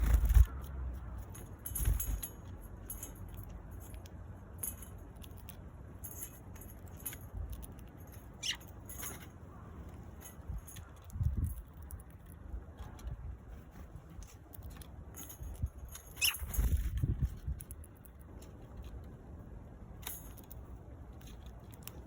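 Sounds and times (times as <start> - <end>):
sparrows chirping: 8.1 - 11.1, 16.0 - 16.5.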